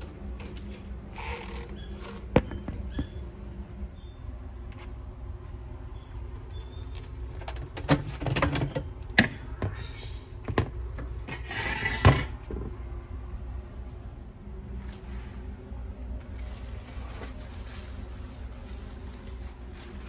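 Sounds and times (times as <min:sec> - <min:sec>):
parts knocking and clattering: 0:02.2 - 0:03.2, 0:10.4 - 0:12.8
scraping rustles: 0:14.7 - 0:20.0.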